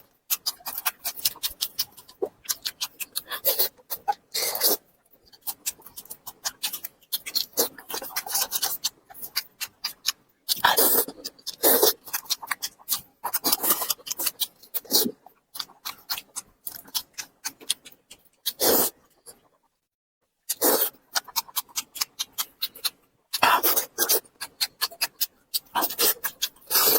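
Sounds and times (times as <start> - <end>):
wet chewing and lip smacks: 0.2 - 19.6, 20.5 - 26.9.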